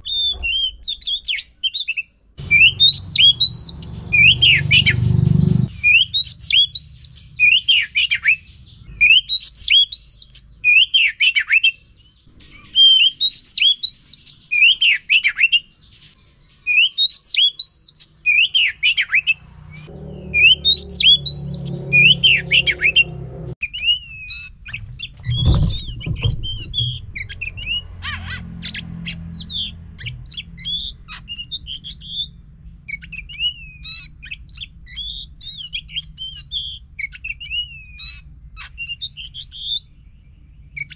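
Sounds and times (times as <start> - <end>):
magpie-robin calling: 0.0 - 23.0, 23.6 - 40.0
low hum: 19.5 - 23.6, 24.7 - 30.7
dull thump: 24.8 - 27.8.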